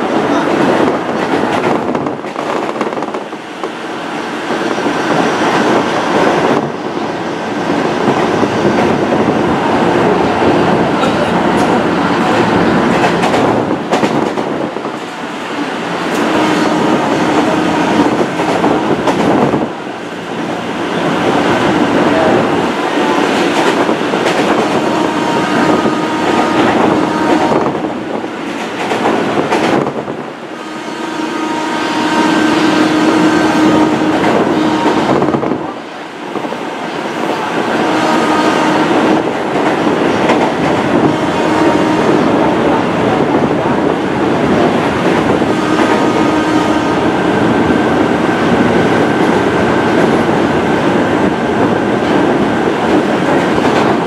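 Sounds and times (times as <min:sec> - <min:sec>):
train wheels rolling on rails: 0:00.0 - 0:54.0
clacking over rail joints: 0:11.0 - 0:15.2, 0:23.1 - 0:24.9, 0:28.4 - 0:30.0, 0:39.0 - 0:41.1.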